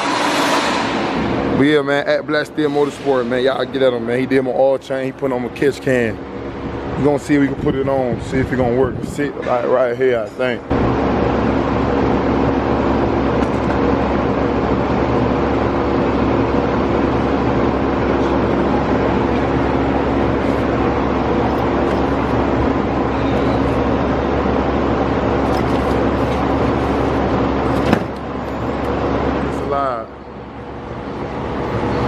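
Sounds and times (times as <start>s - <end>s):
road and wind noise: 0.0s - 32.0s
car engine hum: 10.7s - 32.0s.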